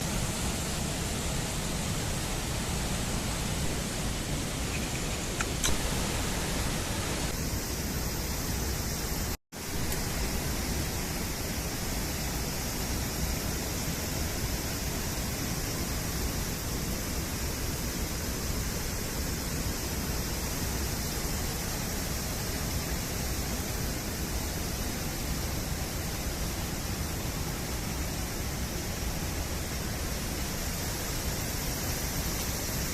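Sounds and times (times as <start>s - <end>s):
steady rushing noise: 0.0s - 15.2s.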